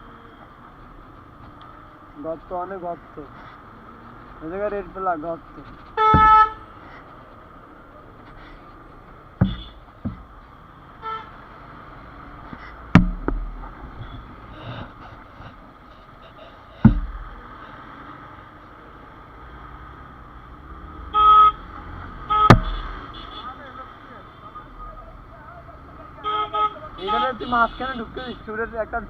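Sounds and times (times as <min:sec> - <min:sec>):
road noise from motorcycle: 0:00.0 - 0:29.0
motorcycle thumping over potholes: 0:06.0 - 0:06.6, 0:09.1 - 0:10.5, 0:12.5 - 0:15.0, 0:16.8 - 0:17.5, 0:22.4 - 0:23.0
vehicle horn honking: 0:06.0 - 0:06.7, 0:09.4 - 0:09.8, 0:11.0 - 0:11.4, 0:21.1 - 0:21.6, 0:22.2 - 0:23.6, 0:26.2 - 0:28.5.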